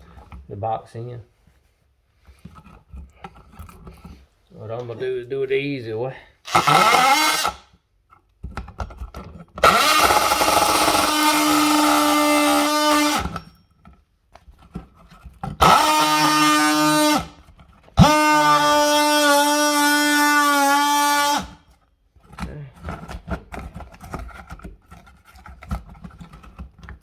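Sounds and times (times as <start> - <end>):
power cutting tool whining: 6.5 - 7.7, 9.6 - 13.5, 15.6 - 17.4, 18.0 - 21.6.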